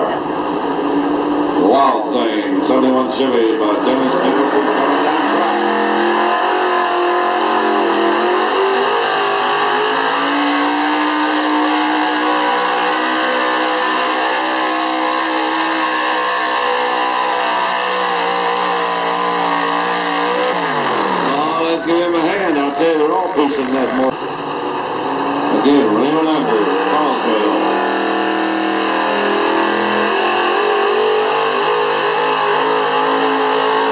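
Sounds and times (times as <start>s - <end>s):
truck engine at full throttle: 0.0s - 33.9s.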